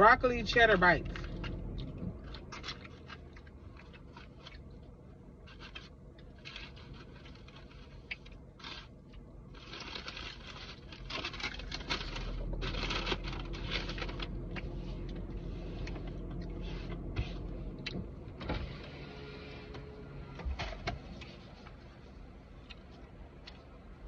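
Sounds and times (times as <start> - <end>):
low steady hum: 0.0 - 24.0
chewing and crunching food: 1.0 - 18.0, 21.2 - 24.0
food wrappers rustling: 1.1 - 15.2.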